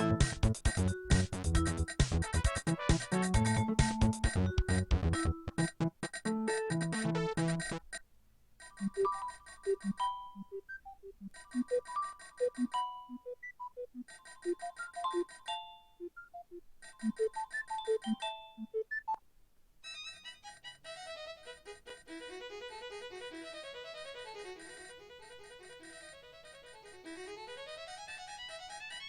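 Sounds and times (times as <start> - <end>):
electronic ringtone melody: 8.7 - 19.2.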